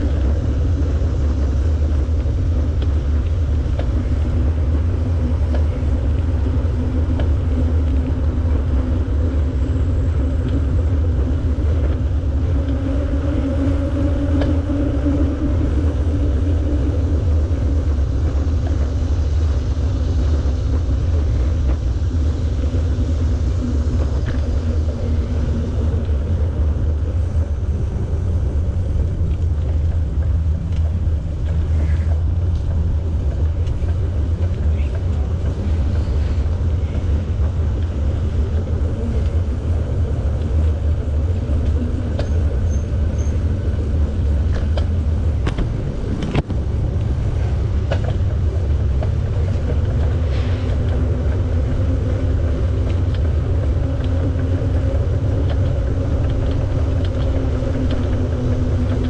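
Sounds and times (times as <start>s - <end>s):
bicycle tyres rolling: 0.0s - 59.0s
wind buffeting microphone: 0.0s - 59.0s
faint ticks: 29.3s - 38.4s.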